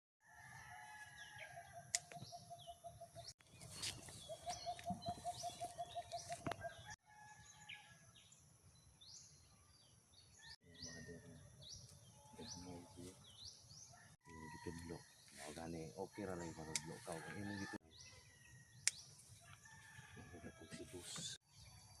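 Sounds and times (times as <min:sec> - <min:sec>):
birds calling: 0:01.3 - 0:07.0, 0:10.2 - 0:19.2
high rising bird chirps: 0:02.0 - 0:07.0.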